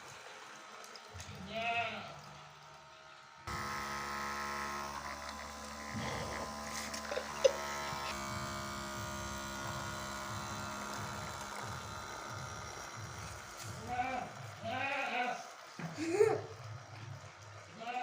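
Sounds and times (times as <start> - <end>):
small electric motor whirring: 3.4 - 16.2.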